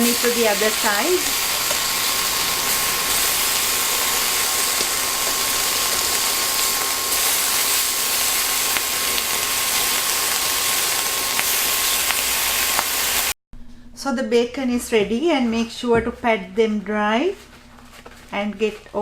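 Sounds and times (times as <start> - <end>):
bacon sizzling in a frying pan: 0.0 - 13.4.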